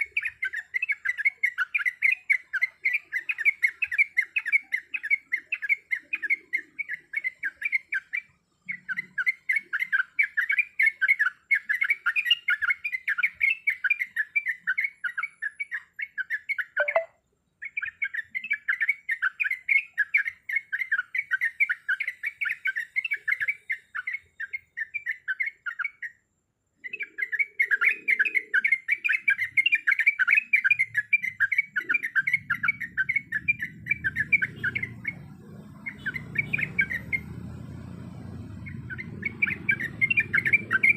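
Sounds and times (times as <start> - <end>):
bird song chattering runs: 0.0 - 40.9.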